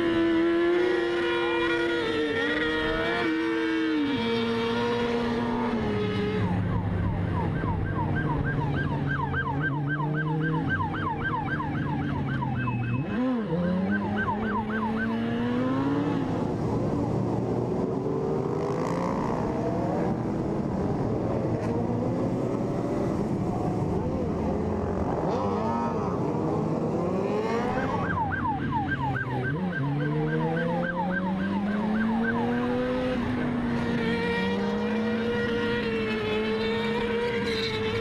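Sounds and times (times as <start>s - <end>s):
police siren yelping: 5.3s - 16.2s, 27.2s - 38.0s.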